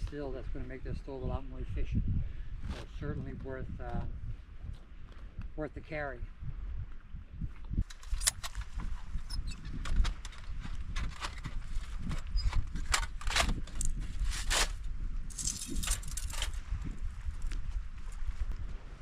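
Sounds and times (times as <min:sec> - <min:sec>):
camp cooking gear clicks and knocks: 0:07.8 - 0:16.6.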